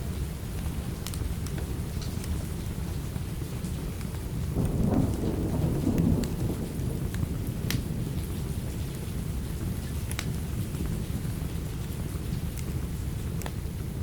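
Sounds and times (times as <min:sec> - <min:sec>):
heavy rain: 0:00.0 - 0:14.0
thunder rumble: 0:04.4 - 0:09.8.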